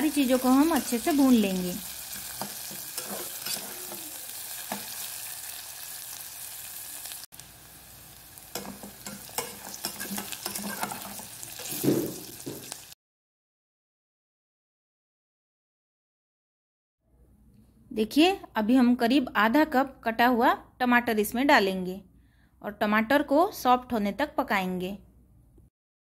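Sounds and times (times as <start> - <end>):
vegetables sizzling in hot oil: 0.0 - 13.0
spatula scraping a metal pot: 2.0 - 5.2, 8.6 - 12.4.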